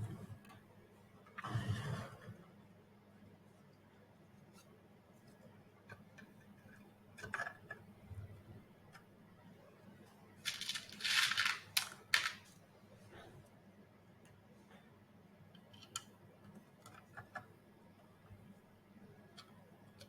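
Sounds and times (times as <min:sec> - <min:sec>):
robot parts scraping and rustling: 0:10.5 - 0:12.4.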